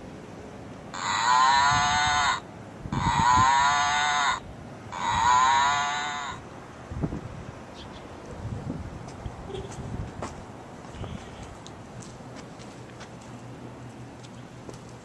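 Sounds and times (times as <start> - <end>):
faint outdoor background noise: 0.0 - 15.0
drawn-out pitched call: 0.9 - 6.4.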